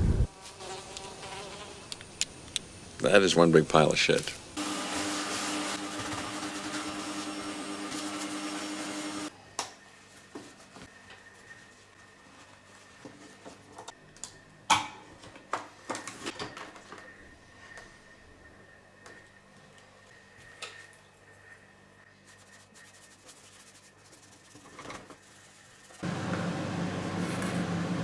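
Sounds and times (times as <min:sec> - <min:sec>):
small electric motor tool running: 0:04.6 - 0:09.3.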